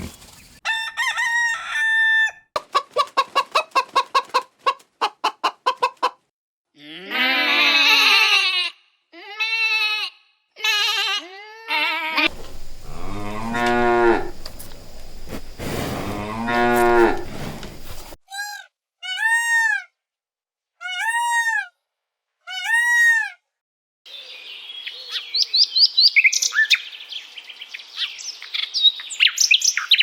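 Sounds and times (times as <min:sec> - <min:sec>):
cattle mooing: 0:12.3 - 0:18.2
short repeated arching calls: 0:12.3 - 0:18.2.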